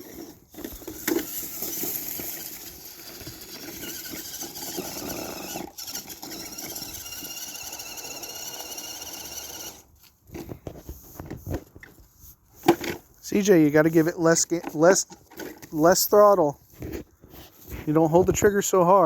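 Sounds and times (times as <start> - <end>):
electric motor whining: 0.0 - 9.9.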